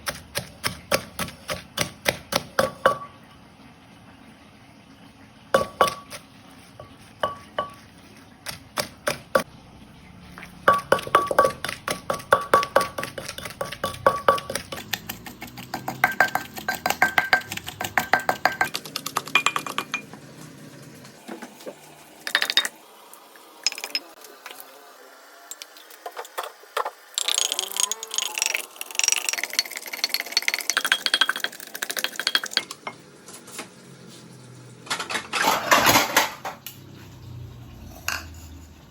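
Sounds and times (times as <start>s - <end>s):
utensils clinking against pots: 10.6s - 20.1s, 34.9s - 36.7s, 37.8s - 38.8s.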